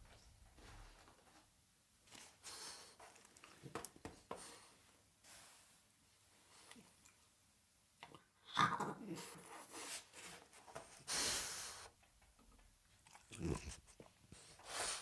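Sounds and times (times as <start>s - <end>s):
dog breathy burst: 11.0s - 11.9s, 13.4s - 15.0s
dog chewing and biting: 13.0s - 14.0s.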